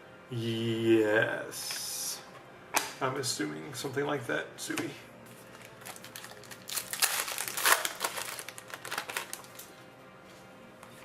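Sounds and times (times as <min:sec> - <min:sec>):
plastic packaging crinkling: 0:05.4 - 0:09.7.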